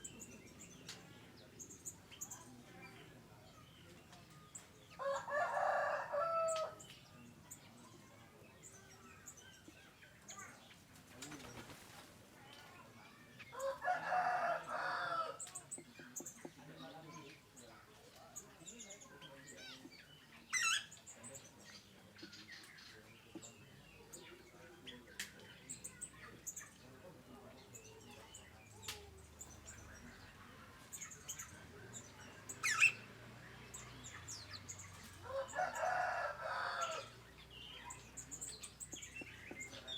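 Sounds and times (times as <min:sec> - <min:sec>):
small birds chirping: 0:00.0 - 0:39.9
rooster crowing: 0:05.0 - 0:06.8, 0:13.6 - 0:15.4, 0:35.2 - 0:37.1.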